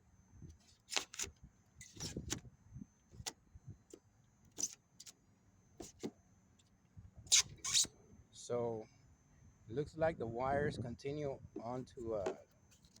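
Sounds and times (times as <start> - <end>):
hand tool scraping foam: 4.6 - 5.1, 5.8 - 6.1, 7.3 - 7.9.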